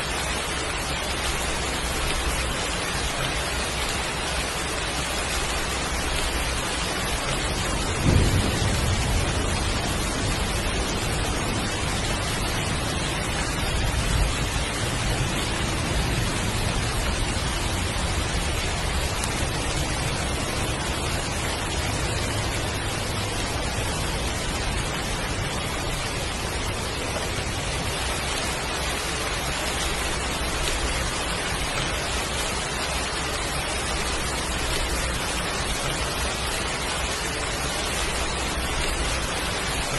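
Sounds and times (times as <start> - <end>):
heavy rain falling: 0.0 - 39.9
rumble of thunder: 6.0 - 28.0
thunderclap: 7.3 - 28.0.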